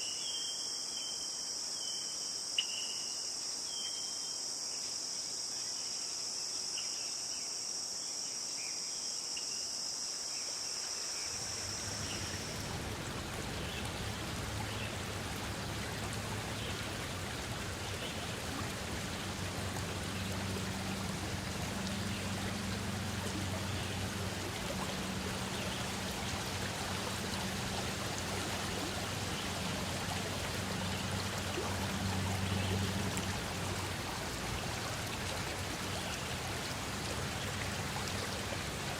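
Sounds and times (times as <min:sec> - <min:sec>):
insects trilling: 0:00.0 - 0:38.9
stream rushing: 0:11.3 - 0:38.9
low steady rumble: 0:11.4 - 0:38.9.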